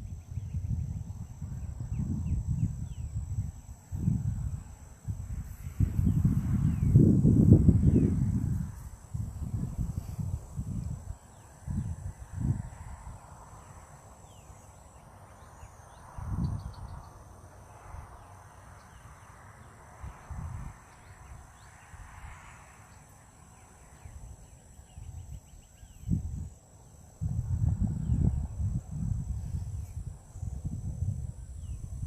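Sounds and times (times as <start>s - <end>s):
low rumbles on microphone: 0.0s - 13.1s, 27.2s - 32.0s
bird chirps and trills: 14.2s - 17.2s.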